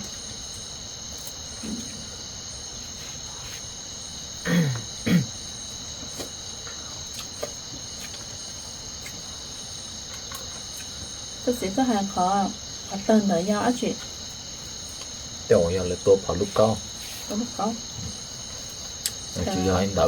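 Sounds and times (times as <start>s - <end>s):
crickets trilling: 0.0s - 20.0s
person's voice: 19.4s - 20.0s.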